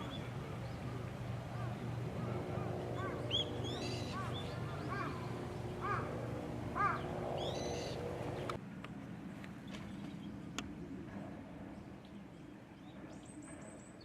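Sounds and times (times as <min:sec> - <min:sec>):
harsh bird calls: 0:00.0 - 0:08.6
steady low hum: 0:00.0 - 0:08.6.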